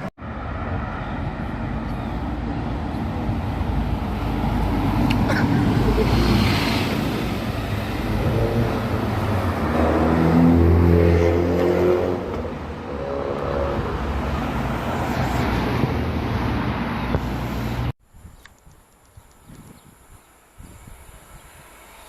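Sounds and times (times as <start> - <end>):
vehicle engine accelerating: 0.3 - 17.9.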